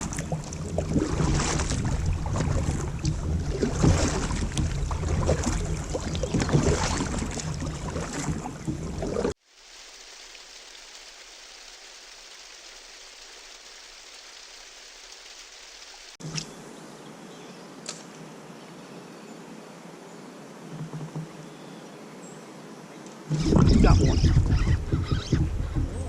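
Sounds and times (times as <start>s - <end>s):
river water: 0.0s - 26.0s
faint hiss: 9.4s - 23.4s
small knocks: 20.7s - 21.4s
heavy low rumble: 23.3s - 26.0s
wind noise on microphone: 23.3s - 26.0s.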